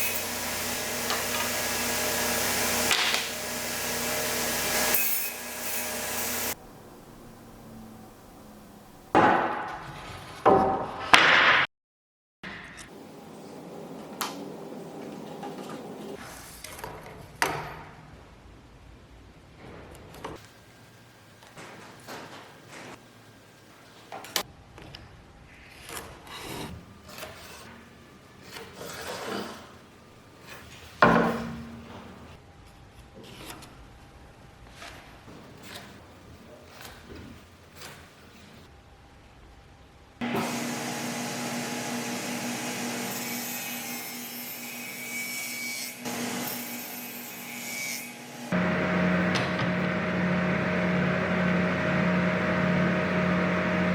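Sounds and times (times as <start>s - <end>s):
power tool running: 0.0s - 6.6s, 40.2s - 43.1s, 46.1s - 46.6s, 48.2s - 53.9s.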